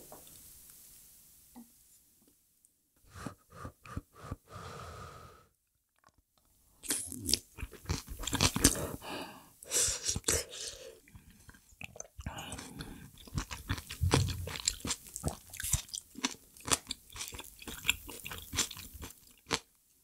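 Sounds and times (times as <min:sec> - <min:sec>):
wet chewing: 0:06.9 - 0:08.9, 0:11.0 - 0:19.7.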